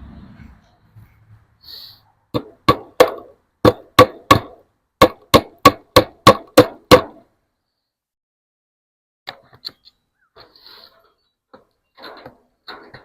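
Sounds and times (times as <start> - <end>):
hammer striking staples: 2.4 - 7.2.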